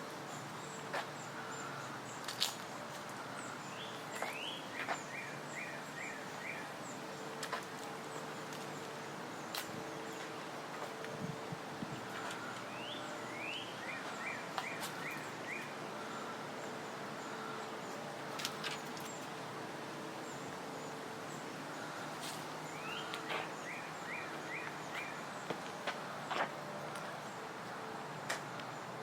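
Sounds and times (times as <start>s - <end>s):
songbird calling: 0.2s - 10.4s, 12.1s - 19.3s, 20.2s - 27.5s.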